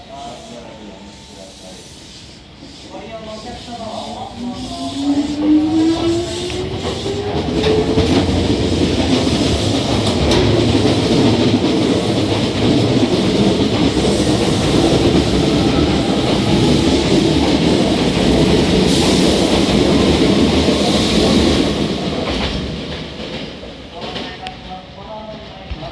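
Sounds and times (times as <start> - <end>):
wheel rumble and rail clatter: 5.8 - 21.5.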